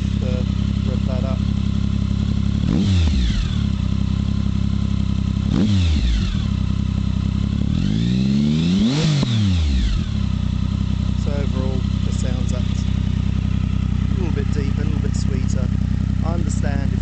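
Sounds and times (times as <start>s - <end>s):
motorcycle engine idling and revving: 0.0s - 17.0s.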